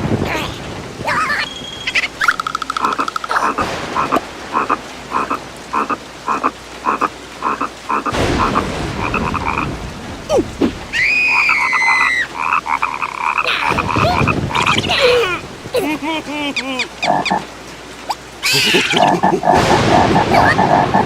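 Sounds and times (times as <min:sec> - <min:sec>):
cartoon frog croaking: 0:01.2 - 0:09.7, 0:10.3 - 0:17.5, 0:18.1 - 0:21.0
burst of noise: 0:03.5 - 0:06.5, 0:08.0 - 0:16.3, 0:18.6 - 0:21.0.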